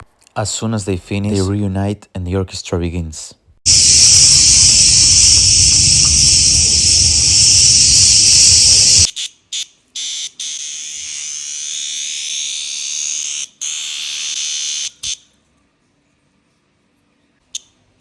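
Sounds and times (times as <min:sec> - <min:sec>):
cicadas buzzing: 0:03.7 - 0:09.1.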